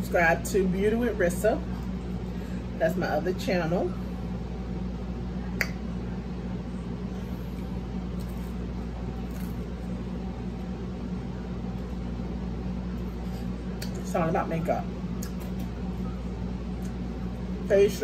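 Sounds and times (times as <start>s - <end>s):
steady low hum: 0.0s - 18.0s
faint chewing: 7.2s - 9.9s.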